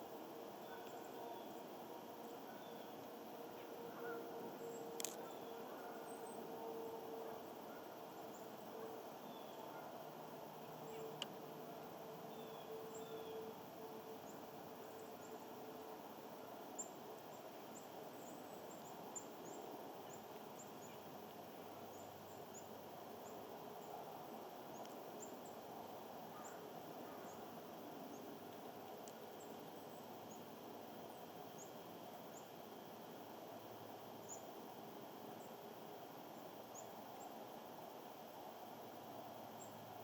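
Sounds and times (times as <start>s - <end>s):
faint steady drone: 0.0s - 40.0s
steady background hum: 0.0s - 40.0s
small birds high call notes: 2.3s - 10.1s, 10.7s - 15.6s.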